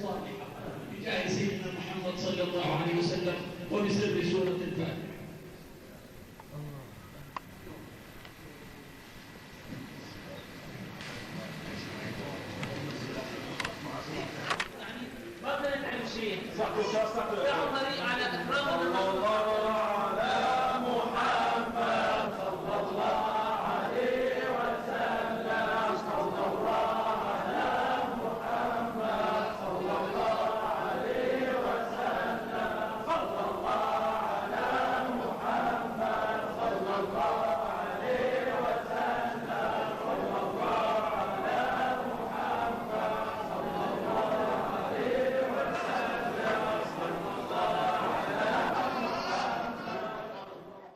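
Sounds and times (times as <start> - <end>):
men chanting in unison: 16.0 - 50.9.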